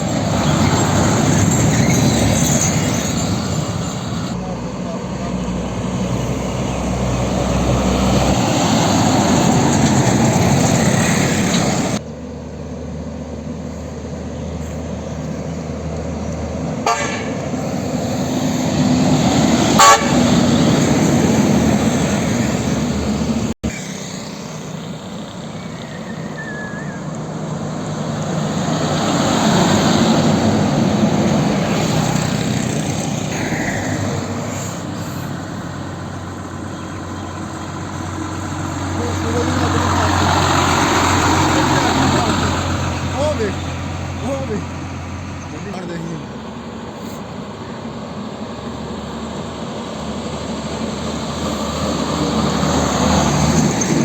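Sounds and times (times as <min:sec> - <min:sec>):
heavy trucks passing: 0:00.0 - 0:54.0
truck horn: 0:16.8 - 0:17.9, 0:19.6 - 0:20.8.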